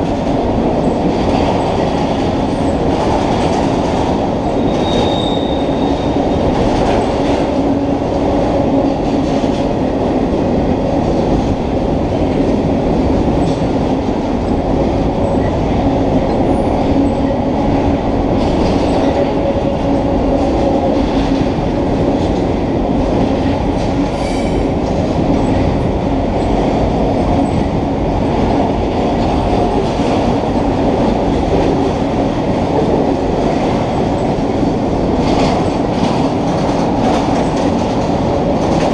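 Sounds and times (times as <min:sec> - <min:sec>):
freight train wheels rumbling: 0:00.0 - 0:38.9
faint wheel squeal: 0:04.7 - 0:06.1.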